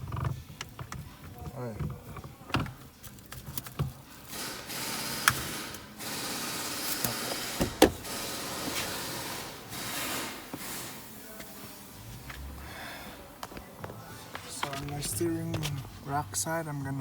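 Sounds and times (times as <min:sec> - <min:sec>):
rustling handling noise: 0:13.6 - 0:16.1.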